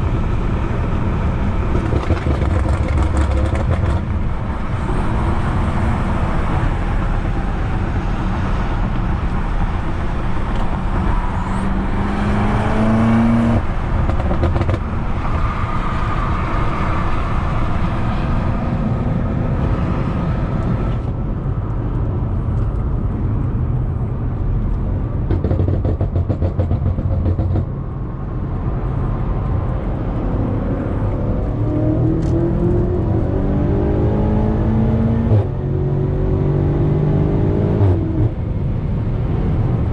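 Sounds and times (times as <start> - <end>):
car engine accelerating: 0.0 - 21.2, 29.0 - 39.0.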